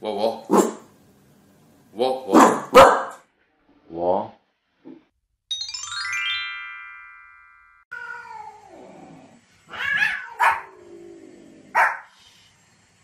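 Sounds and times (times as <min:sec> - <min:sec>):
dog barking: 0:00.5 - 0:00.8, 0:02.3 - 0:03.2, 0:10.0 - 0:10.7, 0:11.7 - 0:12.1
descending chime notes: 0:05.5 - 0:07.9
dog whining: 0:09.7 - 0:10.8.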